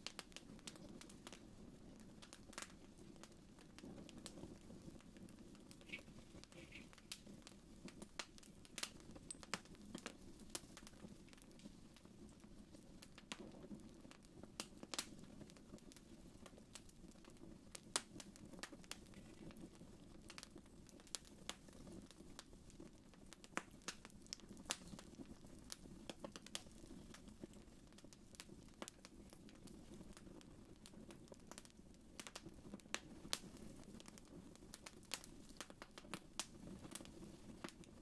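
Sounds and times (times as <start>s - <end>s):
fire crackling and popping: 0.0s - 38.0s.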